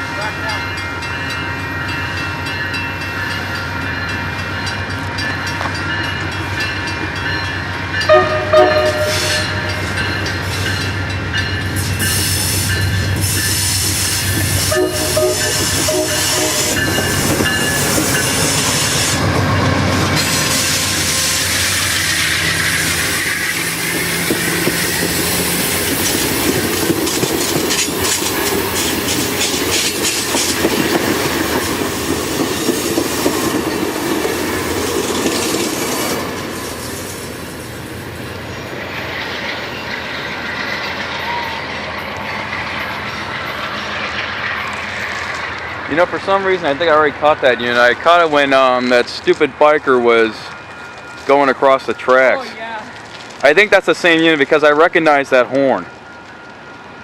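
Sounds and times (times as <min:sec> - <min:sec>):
diesel locomotive engine running: 0:00.0 - 0:55.2
train horn blasts: 0:08.0 - 0:10.0, 0:14.6 - 0:17.1, 0:20.2 - 0:21.8
train wheels clacking over rail joints: 0:08.0 - 0:36.2.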